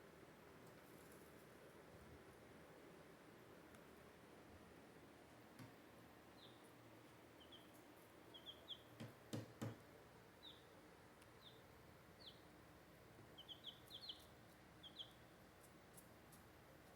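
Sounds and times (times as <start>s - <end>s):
baby chicks peeping: 6.4s - 6.7s, 7.4s - 12.6s, 13.2s - 16.9s.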